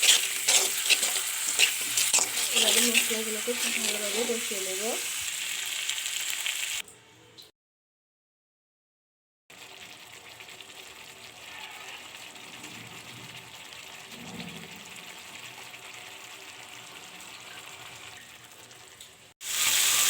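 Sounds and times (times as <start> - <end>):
spice paste sizzling in oil: 0.0 - 6.8, 19.4 - 20.0.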